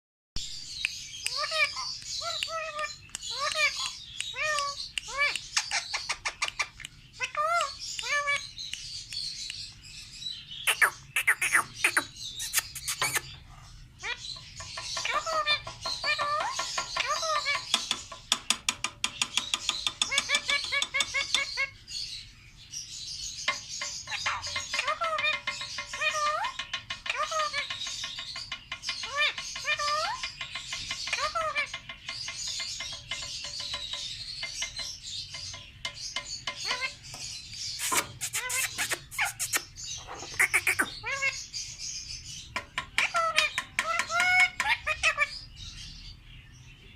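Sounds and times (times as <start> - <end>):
parrot chirping: 0.9 - 8.9, 10.6 - 18.3, 19.4 - 21.8, 23.4 - 41.8, 42.5 - 45.5
parrot chirps and whistles: 10.6 - 13.4, 37.8 - 41.4
parrot clicking: 40.4 - 40.9.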